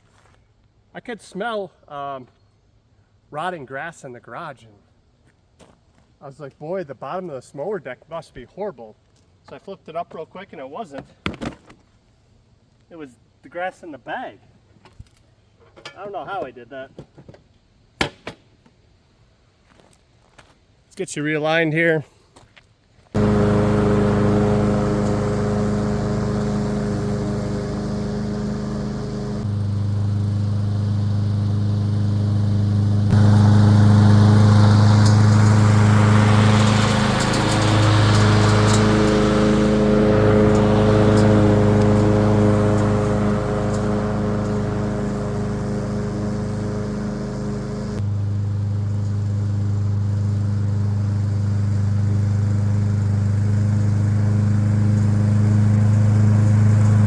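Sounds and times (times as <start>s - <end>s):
lawn mower engine running: 23.2s - 57.0s.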